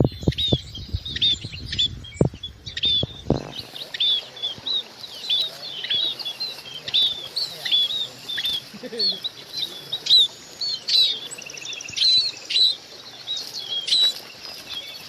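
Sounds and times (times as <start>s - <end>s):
low thumps: 0.0s - 3.7s
birds chirping: 0.0s - 15.0s.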